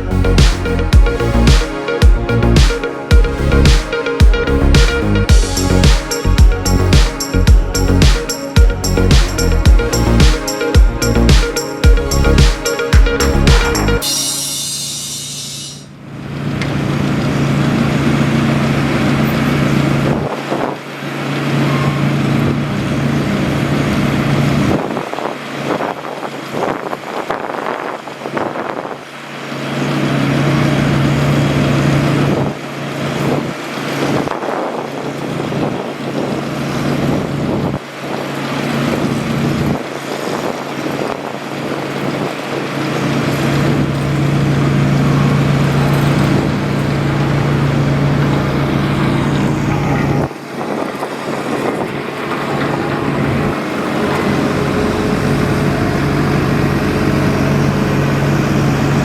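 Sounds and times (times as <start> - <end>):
heavy machinery engine humming: 0.0 - 10.2, 10.8 - 20.2, 36.3 - 59.0.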